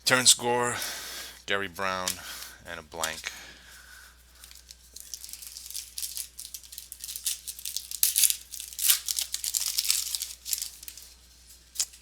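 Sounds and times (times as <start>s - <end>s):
foil wrapper tearing and crinkling: 4.4s - 12.0s.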